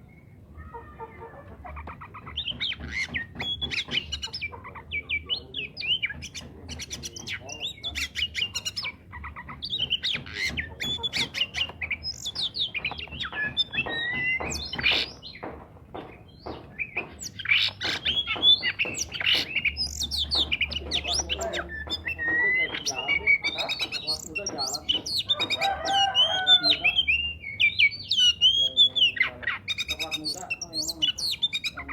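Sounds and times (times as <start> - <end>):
songbird whistles and trills: 2.3 - 9.0, 16.2 - 31.9.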